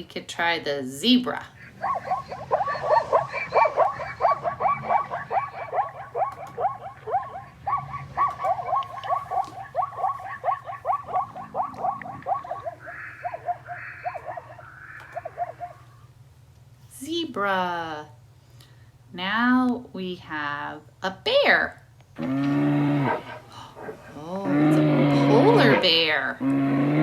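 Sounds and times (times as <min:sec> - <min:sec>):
zebra yelping barks: 0:01.3 - 0:16.1, 0:22.2 - 0:27.0
breathy gasps: 0:23.3 - 0:24.2.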